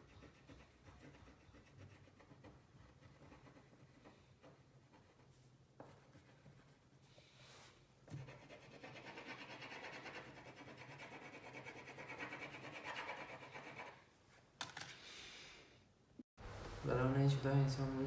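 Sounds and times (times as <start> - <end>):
colouring tool scratching on paper: 0.0 - 5.4, 8.1 - 14.0.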